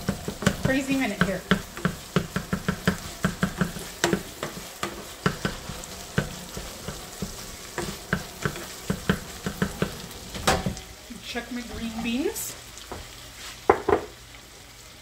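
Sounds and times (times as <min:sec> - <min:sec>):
spatula scraping and tapping a pan: 0:00.0 - 0:10.8, 0:13.7 - 0:14.1
meat and onions sizzling in a pan: 0:00.0 - 0:15.0.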